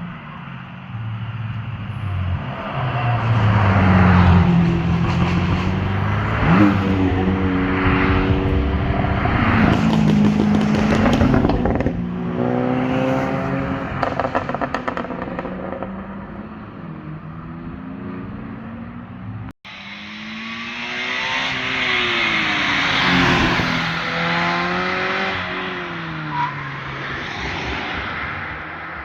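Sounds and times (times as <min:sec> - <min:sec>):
car engine revving: 0:00.0 - 0:28.6
exhaust pops and crackles: 0:07.8 - 0:12.2, 0:14.0 - 0:16.0.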